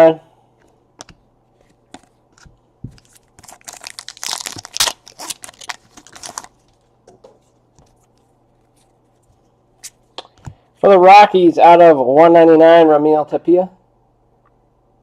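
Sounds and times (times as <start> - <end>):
wrapper tearing and crinkling: 2.9 - 6.7.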